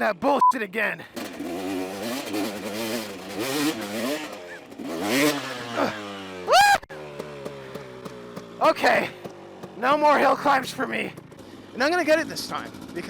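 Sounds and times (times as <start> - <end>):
dirt bike engine revving: 1.0 - 13.0.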